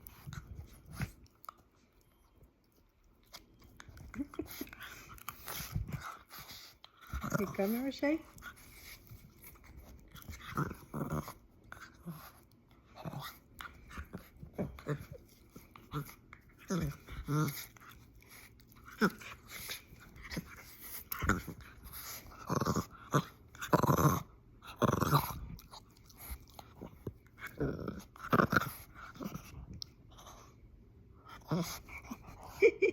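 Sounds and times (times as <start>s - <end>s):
dog growling and grunting: 7.0s - 8.1s, 10.2s - 12.3s, 12.9s - 18.0s, 18.8s - 25.7s, 26.7s - 29.7s, 31.2s - 32.9s.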